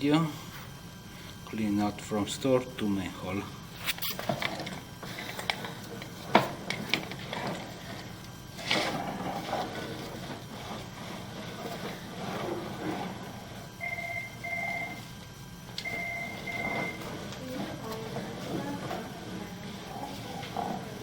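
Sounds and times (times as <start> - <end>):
short electronic beeps: 13.8 - 15.1, 15.8 - 17.1.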